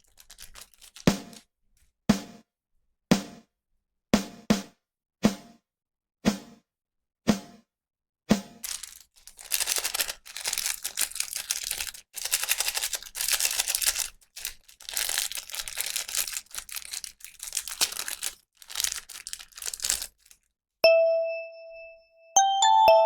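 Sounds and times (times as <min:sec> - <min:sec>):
plastic packaging crinkling: 0:00.0 - 0:01.5, 0:08.6 - 0:20.5
bright chime ringing: 0:20.8 - 0:23.0.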